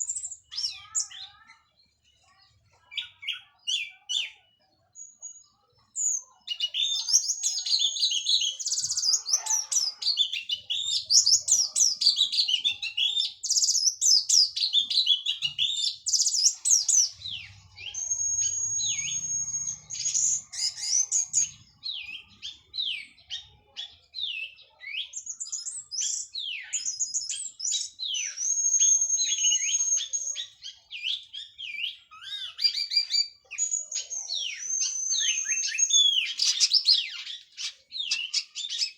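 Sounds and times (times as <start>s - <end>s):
long high whistles: 17.9s - 19.8s, 28.4s - 30.0s.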